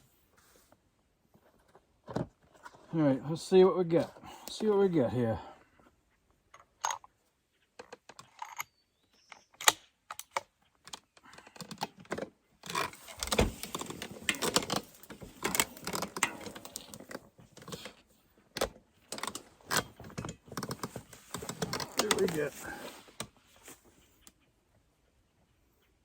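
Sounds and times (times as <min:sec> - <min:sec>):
rifle clicks and rattles: 0:06.5 - 0:22.5
gear clatter and rustling: 0:10.3 - 0:24.1.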